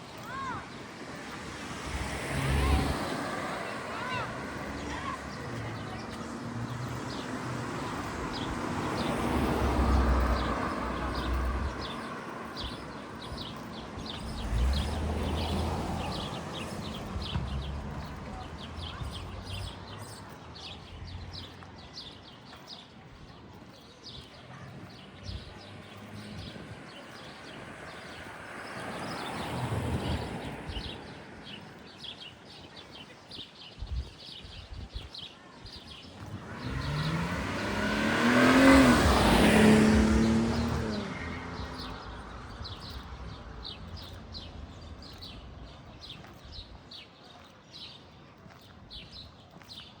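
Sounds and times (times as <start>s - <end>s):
car passing: 0.2s - 21.7s, 25.0s - 32.0s, 36.1s - 46.6s
fainter vehicle passing: 36.2s - 44.5s.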